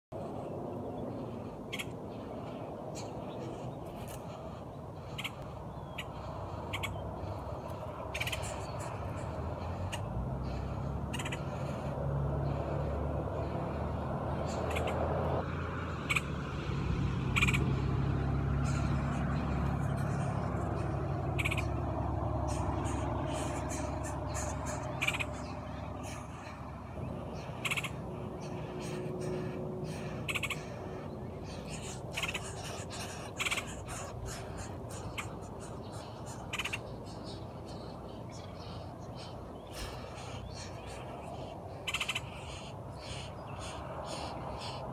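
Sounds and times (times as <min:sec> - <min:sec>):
steady low drone: 0:00.1 - 0:44.9
sharp bird chips: 0:27.3 - 0:30.8.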